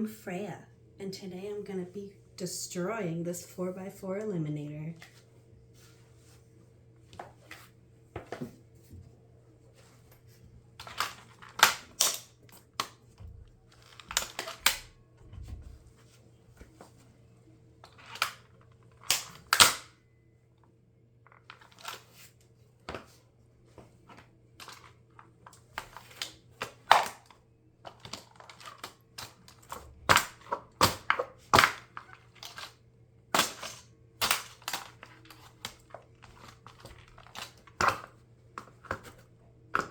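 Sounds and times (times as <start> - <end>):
hard plastic cracking and snapping: 10.8 - 14.9, 17.9 - 20.0, 24.1 - 32.8, 33.4 - 39.2.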